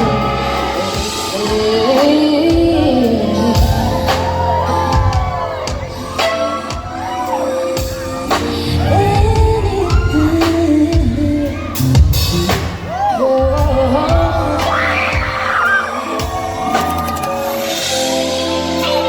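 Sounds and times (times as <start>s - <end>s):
woman singing slow song: 0.0s - 4.7s, 8.4s - 16.2s
live band playing: 0.0s - 19.0s.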